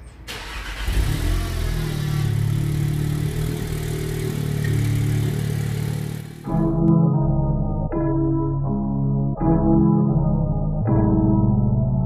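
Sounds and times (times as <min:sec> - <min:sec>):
car engine running: 0:00.8 - 0:06.9.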